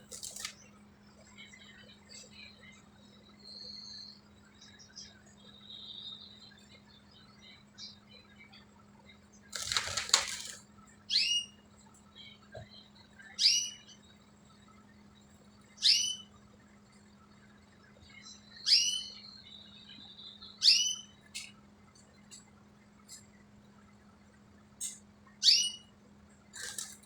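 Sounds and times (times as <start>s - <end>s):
bird high chirp: 11.1s - 11.6s, 12.2s - 14.1s, 15.8s - 16.4s, 18.1s - 21.6s, 25.4s - 25.9s.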